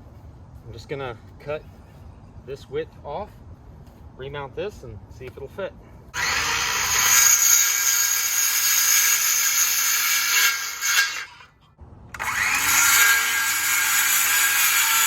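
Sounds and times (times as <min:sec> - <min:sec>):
power tool cutting wire mesh: 0:06.2 - 0:11.5, 0:12.1 - 0:15.0.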